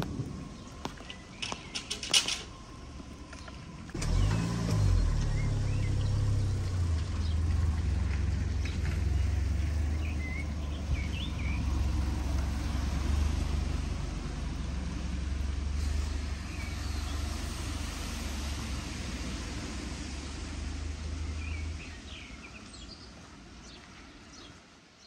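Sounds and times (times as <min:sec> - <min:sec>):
low rumble: 0:00.0 - 0:22.0
rain hissing: 0:03.9 - 0:22.6
bird chirps: 0:04.2 - 0:07.5, 0:08.6 - 0:11.7.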